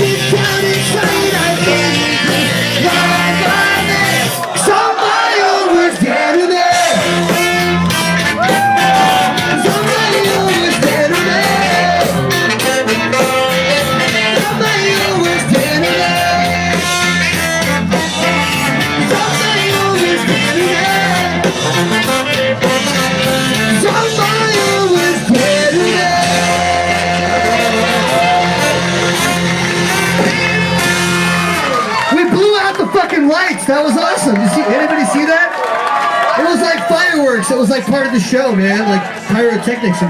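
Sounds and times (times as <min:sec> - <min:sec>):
bass guitar: 0:00.0 - 0:04.6, 0:06.6 - 0:33.0
distorted electric guitars: 0:00.0 - 0:04.6, 0:06.7 - 0:32.1
drums: 0:00.0 - 0:04.8, 0:06.6 - 0:35.1
sung vocals: 0:00.0 - 0:07.6, 0:08.4 - 0:21.8, 0:23.5 - 0:30.8.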